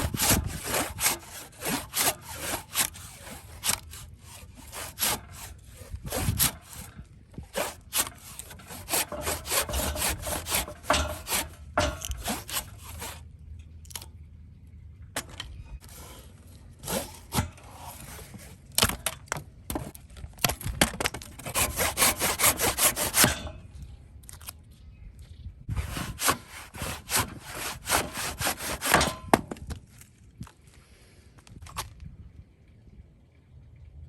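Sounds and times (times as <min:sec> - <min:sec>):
hand tool strokes on wood: 0:07.5 - 0:13.2, 0:21.5 - 0:23.4, 0:25.7 - 0:29.3.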